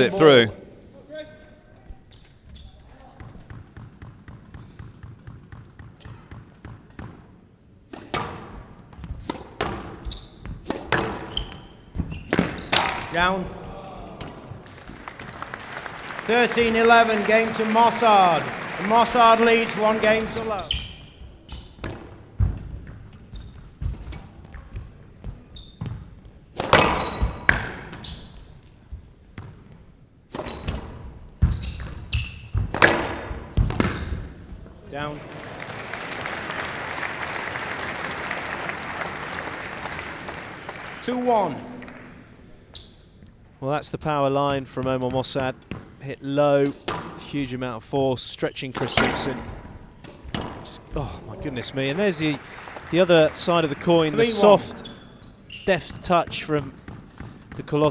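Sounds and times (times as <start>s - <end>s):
shoes squeaking on floor: 1.6s - 7.1s, 8.0s - 34.8s, 40.8s - 43.5s, 48.1s - 57.9s
squash ball cracking off rackets: 7.9s - 15.6s, 26.5s - 28.2s, 30.3s - 34.4s, 48.8s - 51.3s.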